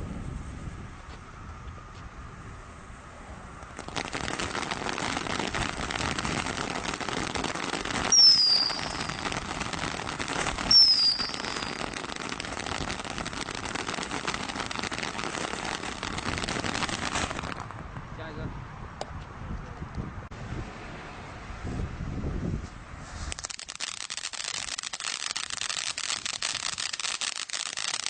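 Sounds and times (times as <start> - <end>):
firework crackling: 2.0 - 18.1, 22.7 - 28.0
firework pops with whistle: 7.9 - 12.9.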